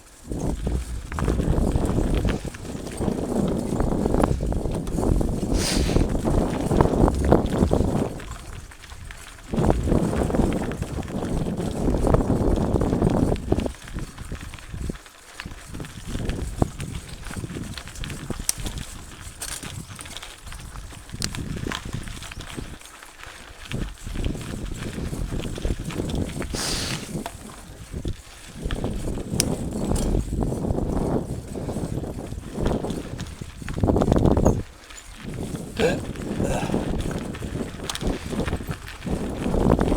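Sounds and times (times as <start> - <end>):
bike rattling and knocking: 0.0 - 39.9
bike tyres crunching on dirt: 0.0 - 39.9
tyres crunching on dirt: 0.3 - 8.1.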